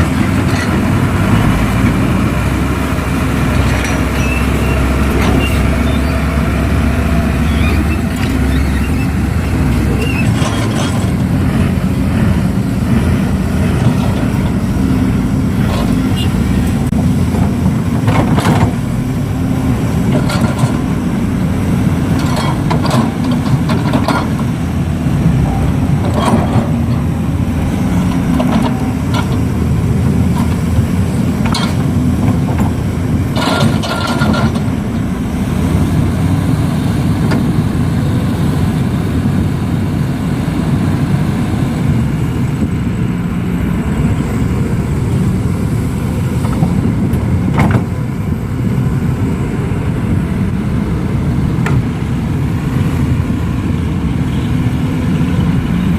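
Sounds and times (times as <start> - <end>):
heavy diesel engines running: 0.0 - 55.9.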